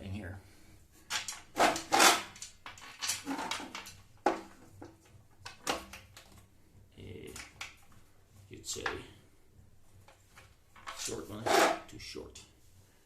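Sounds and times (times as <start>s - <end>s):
metal parts clicking and knocking: 1.1s - 6.4s, 10.1s - 11.8s.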